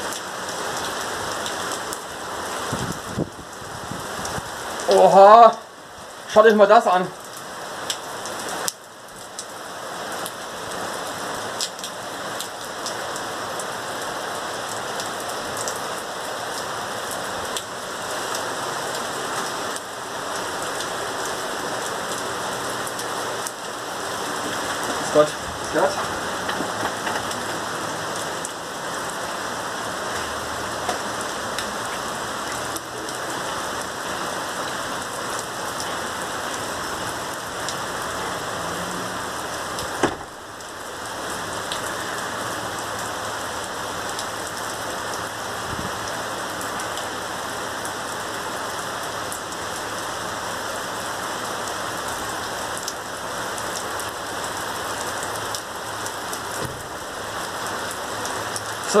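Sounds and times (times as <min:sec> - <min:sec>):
heavy rain pouring: 0:00.0 - 0:59.0
sharp knock: 0:40.0 - 0:40.3.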